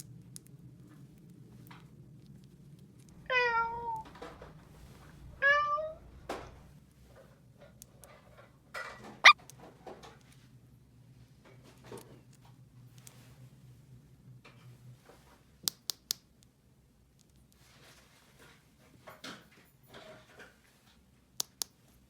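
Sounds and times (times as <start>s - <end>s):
cat meowing: 3.2s - 4.1s, 5.4s - 6.0s.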